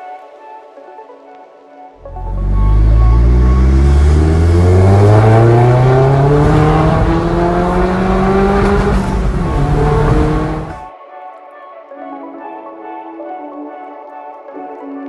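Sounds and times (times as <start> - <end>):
car engine accelerating: 2.0 - 10.9.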